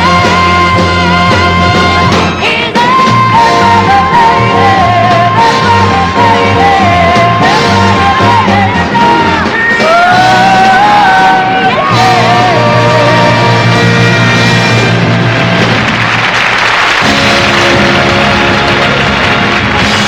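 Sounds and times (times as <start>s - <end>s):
live pop-soul band music: 0.0s - 20.0s.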